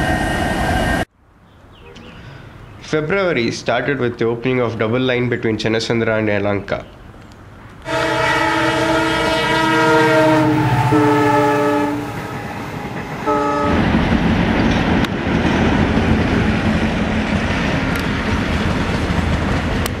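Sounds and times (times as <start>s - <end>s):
locomotive horn blast: 7.8s - 13.9s
train wheels clacking on rails: 10.7s - 20.0s.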